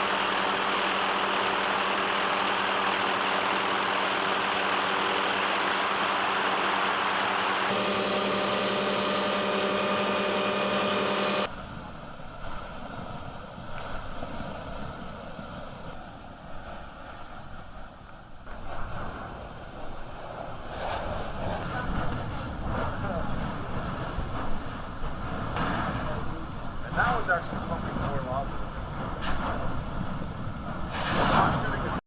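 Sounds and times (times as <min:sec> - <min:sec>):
loud engine drone: 0:00.0 - 0:11.9
gusty wind: 0:11.5 - 0:32.0.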